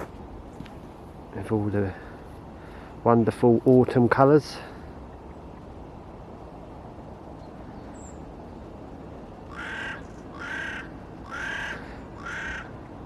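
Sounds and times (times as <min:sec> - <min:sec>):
low background noise: 0:00.0 - 0:13.0
crow cawing: 0:09.4 - 0:12.9.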